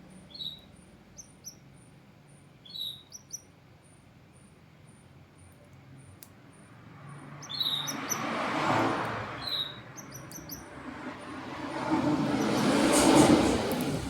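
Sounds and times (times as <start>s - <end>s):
canary chirping: 0.3s - 1.6s, 2.6s - 3.5s, 7.4s - 8.3s, 9.4s - 10.7s
rushing noise: 10.8s - 14.0s.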